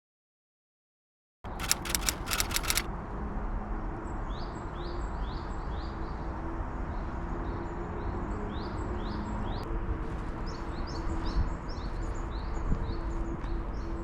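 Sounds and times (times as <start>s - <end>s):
sharp clicks: 1.5s - 2.9s.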